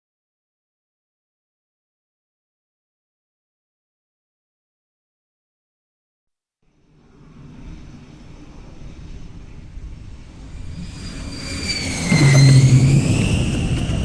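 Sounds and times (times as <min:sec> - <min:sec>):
jet engine turbine whine: 0:06.9 - 0:14.0.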